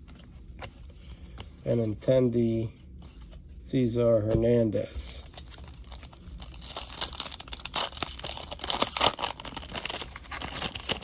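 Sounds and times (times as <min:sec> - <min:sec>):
plastic wrapper crinkling and tearing: 0:05.2 - 0:11.0.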